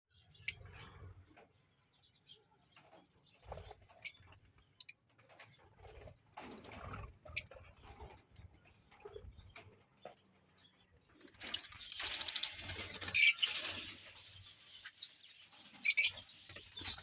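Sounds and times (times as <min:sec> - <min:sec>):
lovebirds chirping: 0:09.0 - 0:17.0.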